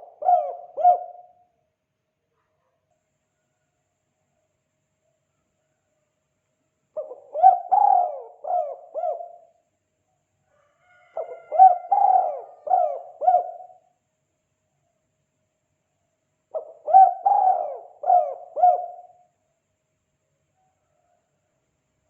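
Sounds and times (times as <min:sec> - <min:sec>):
dove cooing: 0:00.0 - 0:01.4, 0:07.0 - 0:09.6, 0:11.0 - 0:13.9, 0:16.5 - 0:19.3.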